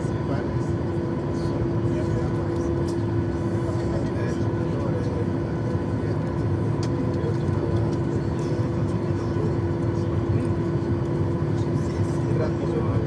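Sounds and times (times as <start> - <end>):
airplane cabin rumble and hum: 0.0 - 13.0.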